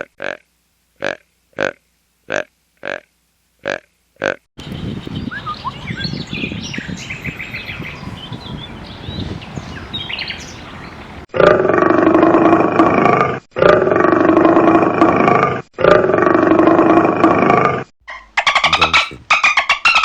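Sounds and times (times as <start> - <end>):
small birds chirping: 4.6 - 11.2.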